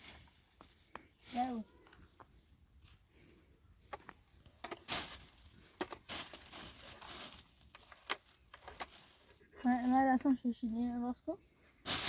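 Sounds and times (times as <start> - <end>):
crinkling and rustling: 3.8 - 11.0.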